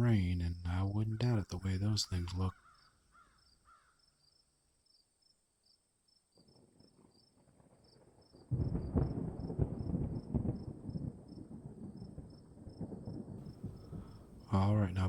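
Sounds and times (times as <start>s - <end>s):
thunder rumbling: 8.5s - 15.0s
crickets chirping: 13.6s - 15.0s.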